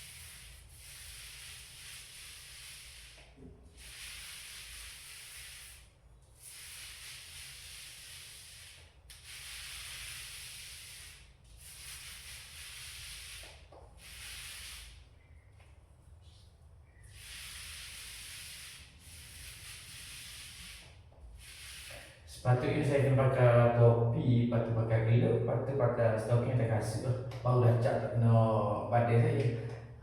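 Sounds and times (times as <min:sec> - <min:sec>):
paint roller rubbing on wall: 0:00.0 - 0:23.4.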